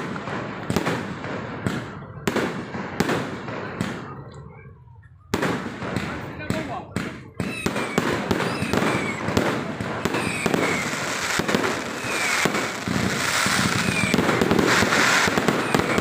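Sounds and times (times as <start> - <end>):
fireworks bangs and crackles: 0.0 - 16.0
fireworks whistles falling: 7.3 - 16.0.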